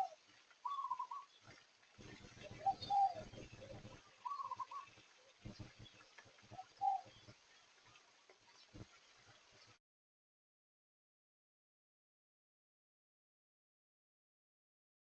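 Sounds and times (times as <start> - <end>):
birds warbling: 0.0 - 7.4.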